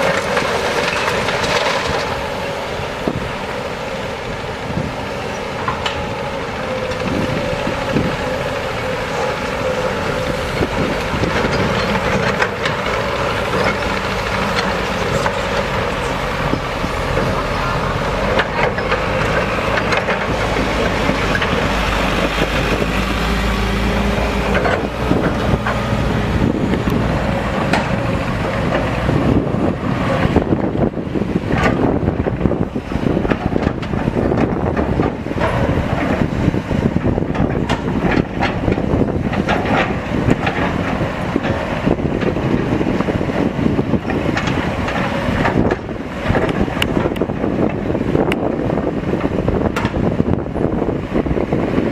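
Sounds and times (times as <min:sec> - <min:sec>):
heavy diesel machinery running: 0:00.0 - 0:51.9
knocks and clanks: 0:33.2 - 0:42.7.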